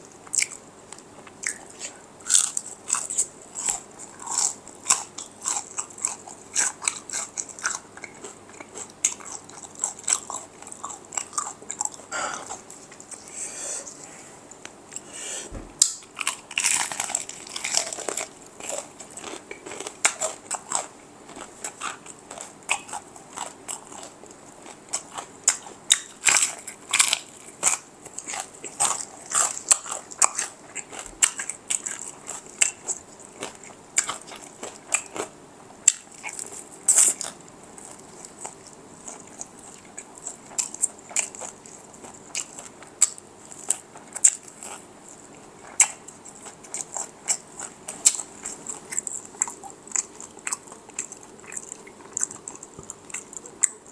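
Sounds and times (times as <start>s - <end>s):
crunching and chewing fried chicken: 0.0s - 13.3s, 15.8s - 53.9s.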